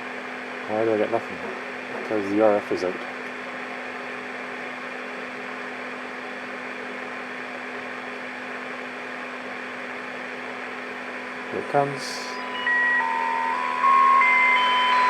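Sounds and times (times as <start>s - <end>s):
radio static hiss: 11.5s - 15.0s
low steady hum: 11.9s - 15.0s.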